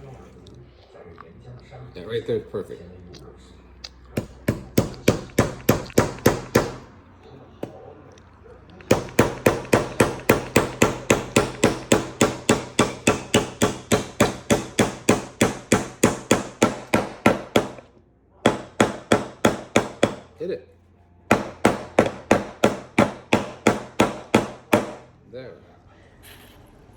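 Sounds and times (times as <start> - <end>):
hammer driving a nail: 4.2 - 6.9, 8.9 - 20.3, 21.3 - 25.1.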